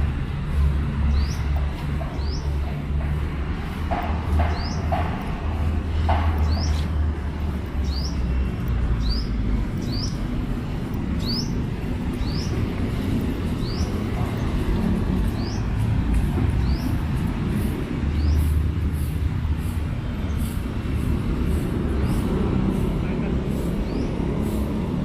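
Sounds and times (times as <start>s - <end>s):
low rumble of city traffic: 0.0s - 25.0s.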